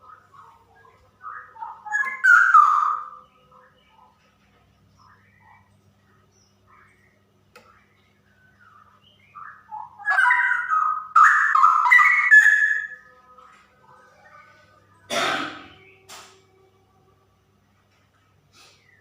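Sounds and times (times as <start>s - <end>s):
bird singing whistled phrases: 1.2s - 3.2s, 8.6s - 13.0s.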